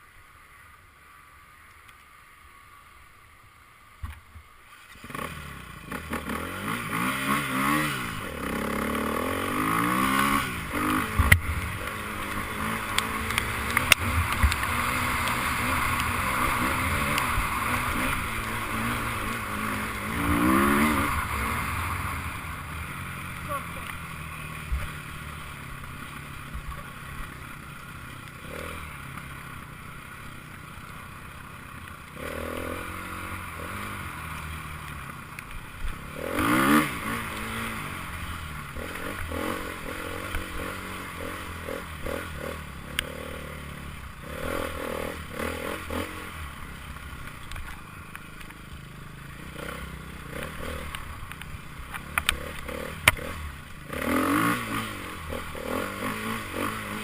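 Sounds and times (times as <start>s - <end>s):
motorcycles revving past: 4.7s - 57.0s
sharp clicks: 12.8s - 16.2s, 50.8s - 53.3s.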